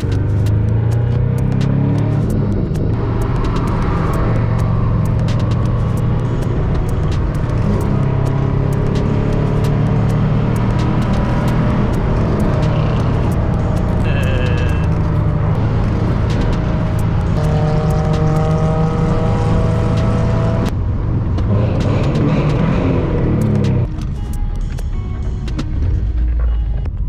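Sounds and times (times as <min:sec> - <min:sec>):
small clicks: 0:00.0 - 0:18.6
car engine drone: 0:00.0 - 0:27.0
road noise: 0:00.0 - 0:27.0.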